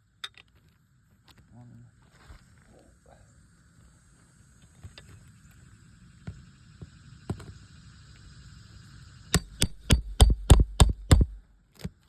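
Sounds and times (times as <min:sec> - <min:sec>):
hammer striking steel tool: 0:09.4 - 0:11.4.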